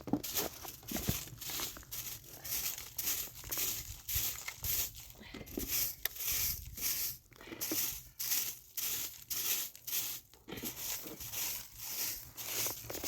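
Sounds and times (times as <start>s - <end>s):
footsteps crunching in snow: 0.0s - 13.0s.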